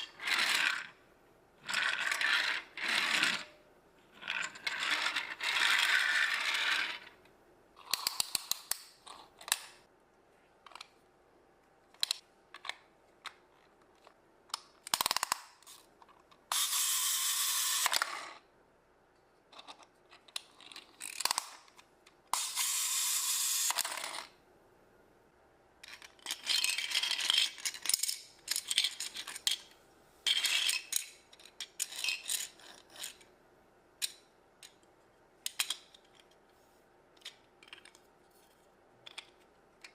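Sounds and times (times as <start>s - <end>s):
plastic blocks clicking and clattering: 7.8s - 9.8s, 11.9s - 16.7s, 19.4s - 24.3s, 25.8s - 33.3s, 34.0s - 36.4s, 37.1s - 39.9s.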